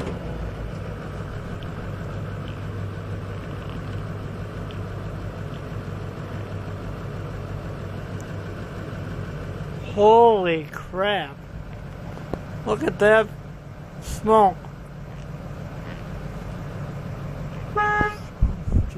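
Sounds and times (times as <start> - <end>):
diesel engine idling: 0.0 - 18.9.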